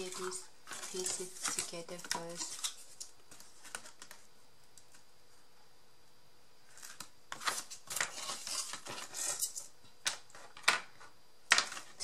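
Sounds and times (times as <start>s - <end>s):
paper being handled: 0.0s - 4.2s.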